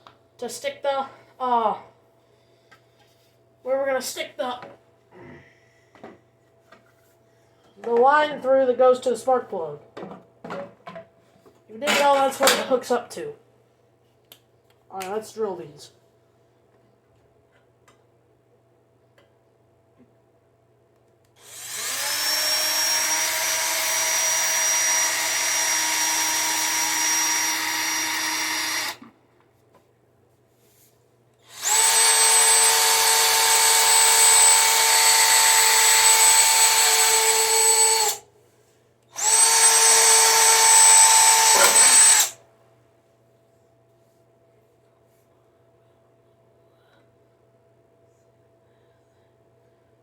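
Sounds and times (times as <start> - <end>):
electric power drill whining: 21.4 - 29.1, 31.4 - 38.2, 39.2 - 42.4.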